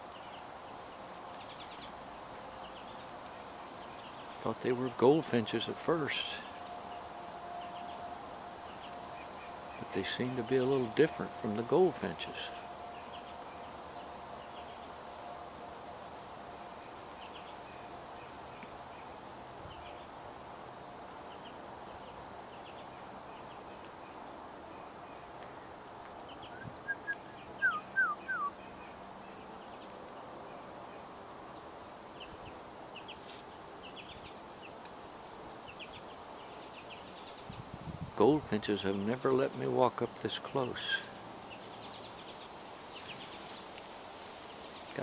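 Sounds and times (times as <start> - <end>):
quiet outdoor hiss: 0.0 - 45.0
loud short bird calls: 25.7 - 28.7.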